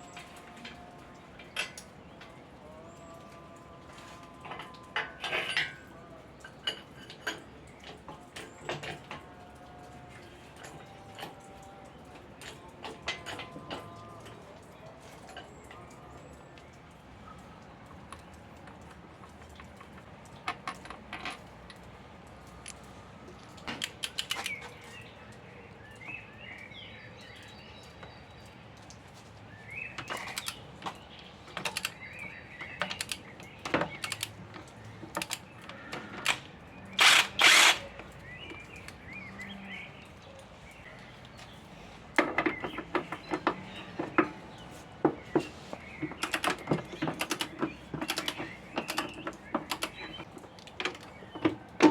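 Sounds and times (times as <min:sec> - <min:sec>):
metal tools clinking and knocking: 0:04.5 - 0:09.3, 0:18.7 - 0:21.9, 0:30.0 - 0:39.1, 0:42.2 - 0:51.9.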